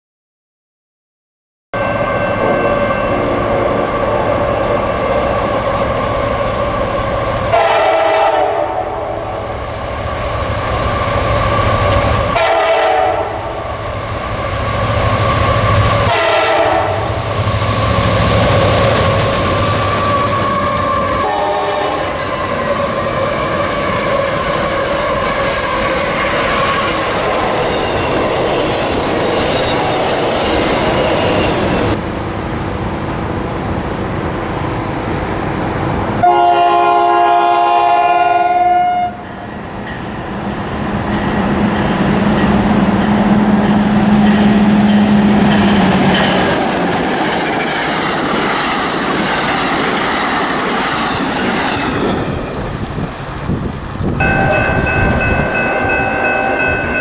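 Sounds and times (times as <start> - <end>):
trains rolling on rails: 1.8 - 57.0
locomotive horn chord: 7.5 - 9.4, 12.4 - 13.6, 16.1 - 17.4, 21.2 - 22.2, 36.2 - 39.3
low steady horn tone: 36.2 - 39.3.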